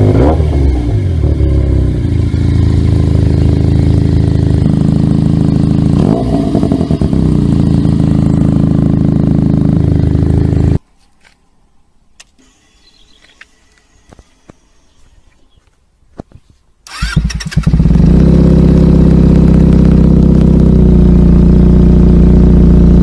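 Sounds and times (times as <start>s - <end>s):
motorcycle engine idling: 0.6s - 6.0s, 6.7s - 10.8s, 16.9s - 23.0s.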